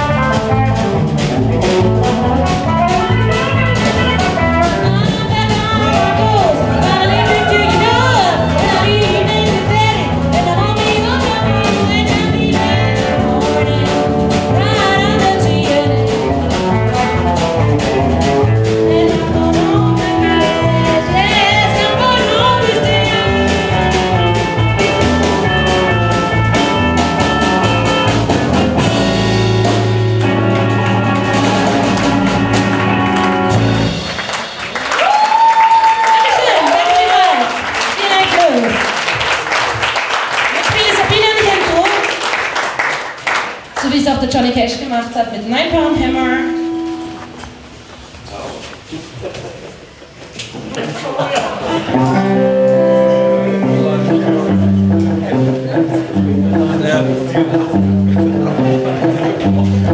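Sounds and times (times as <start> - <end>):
bending lead guitar line: 0.0 - 35.3, 45.6 - 48.4, 51.7 - 59.9
drum beat: 0.0 - 42.8
live rock band playing: 0.0 - 48.8, 51.5 - 59.9.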